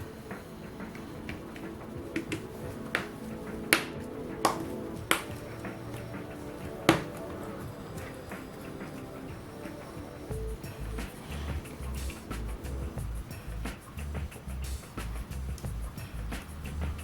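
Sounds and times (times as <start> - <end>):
background music: 0.0 - 17.0
tools clicking and tapping: 0.9 - 6.2.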